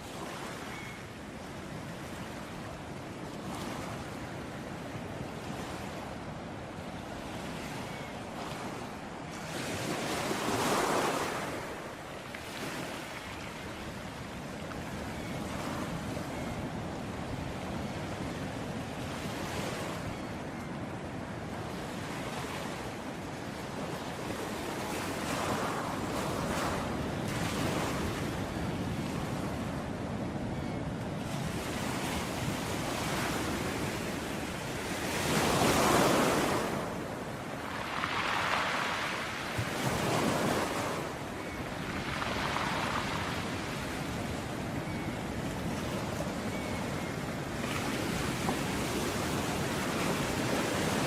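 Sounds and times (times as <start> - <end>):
ocean waves breaking: 31.2 - 51.0.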